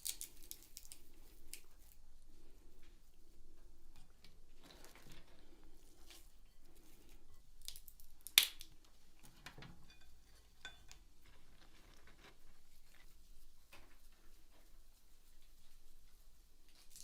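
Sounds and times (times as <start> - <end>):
hands clicking and rustling utensils: 0.0 - 2.0, 7.0 - 14.6.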